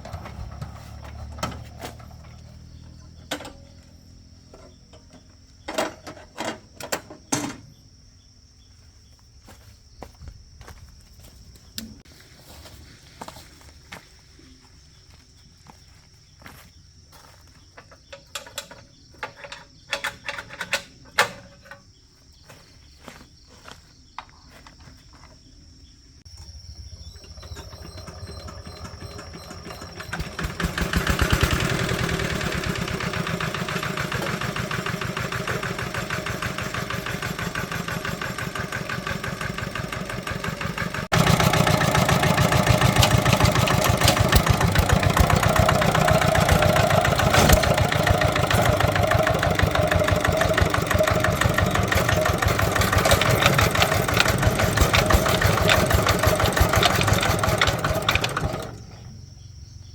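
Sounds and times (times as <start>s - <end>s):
tractor engine chugging: 0.0s - 7.7s, 26.5s - 59.2s.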